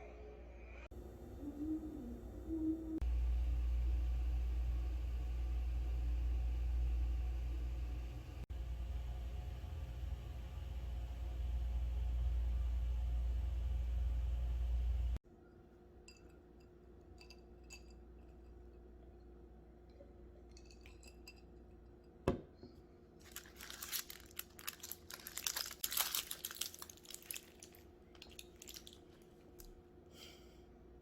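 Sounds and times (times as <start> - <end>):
crackling and crinkling: 23.2 - 29.8.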